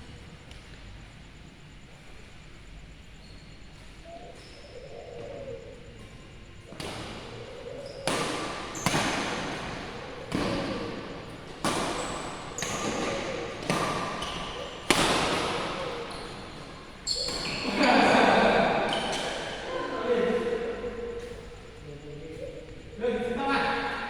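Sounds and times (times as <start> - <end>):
rackets hitting shuttlecock: 8.0 - 18.0.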